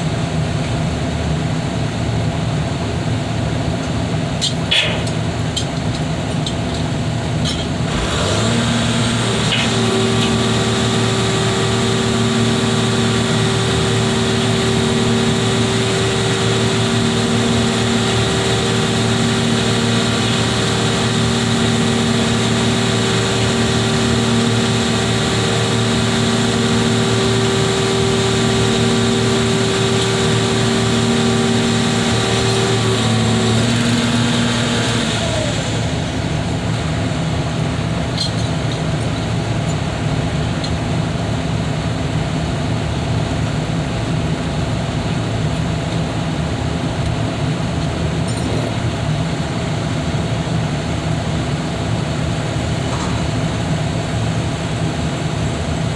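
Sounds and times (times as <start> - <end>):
diesel machinery running: 0.0 - 55.9
steady whine: 3.0 - 41.9.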